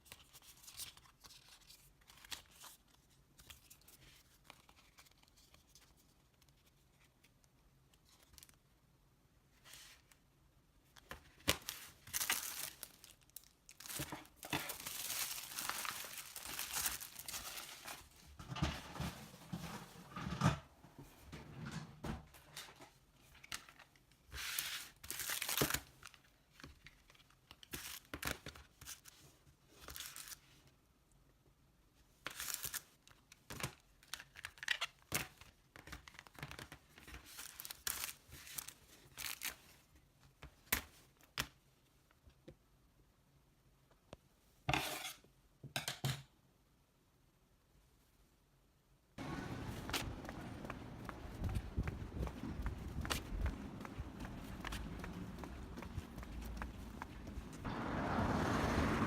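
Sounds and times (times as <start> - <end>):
packaging torn and crinkled: 11.5 - 18.1, 25.0 - 26.2, 32.3 - 33.2, 37.3 - 39.6.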